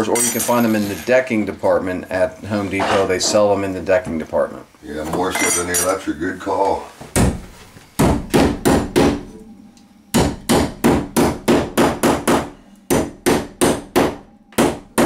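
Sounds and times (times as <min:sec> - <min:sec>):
hammer striking metal plate: 0:10.1 - 0:15.0.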